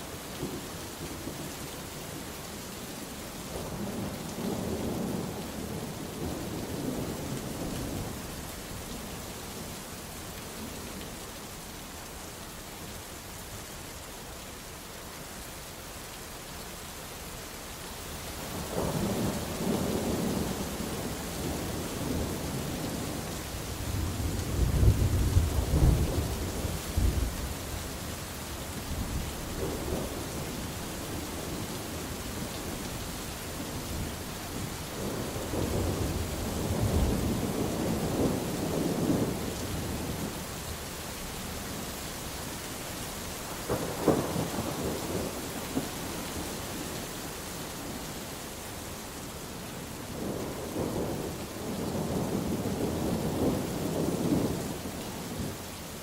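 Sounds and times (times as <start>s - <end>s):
steady rain: 0.0s - 56.0s
thunder rumbling: 18.5s - 27.8s, 28.8s - 40.4s, 43.2s - 47.0s, 50.1s - 55.5s.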